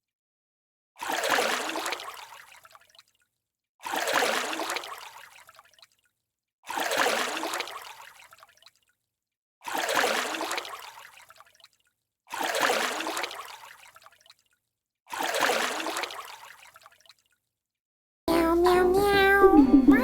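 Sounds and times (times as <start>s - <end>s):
water splashing: 1.0s - 3.1s, 3.8s - 6.0s, 6.7s - 8.8s, 9.6s - 14.5s, 15.1s - 17.4s.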